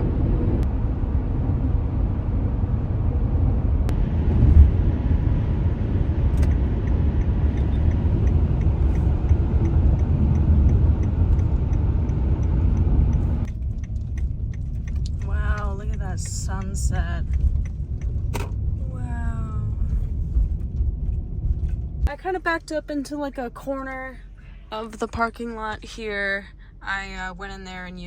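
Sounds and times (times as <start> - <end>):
road and engine rumble: 0.0 - 28.0
light regular ticking: 6.3 - 18.8.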